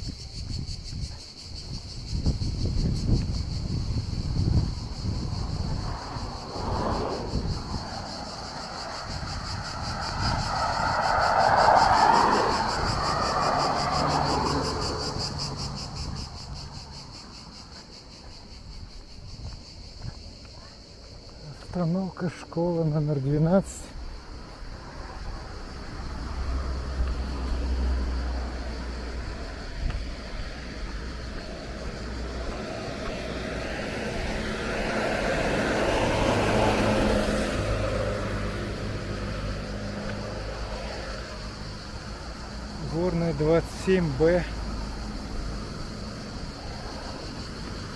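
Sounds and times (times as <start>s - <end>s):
insects chirring: 0.0s - 47.9s
vehicle passing: 3.4s - 18.2s, 23.6s - 47.9s
car driving past: 4.6s - 17.7s, 24.2s - 47.9s.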